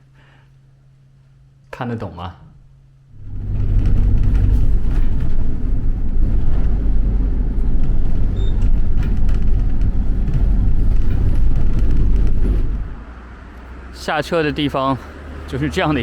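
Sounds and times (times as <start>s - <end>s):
vehicle interior rumble: 3.1s - 16.0s
small clicks and rattles: 3.2s - 13.0s.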